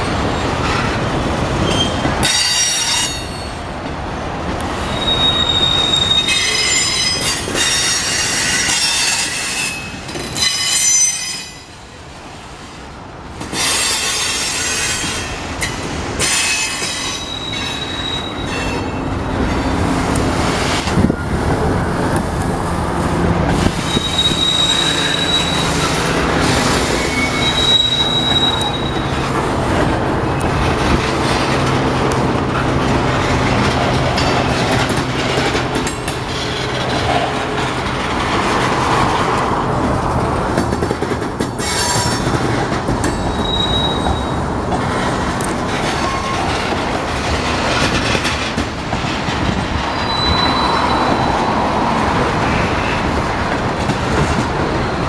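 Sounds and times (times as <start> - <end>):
train wheels rumbling on rail: 0.0 - 55.0
high-pitched wheel squeals: 4.8 - 11.8, 16.2 - 19.0, 23.8 - 29.2, 43.2 - 44.4, 49.9 - 51.7.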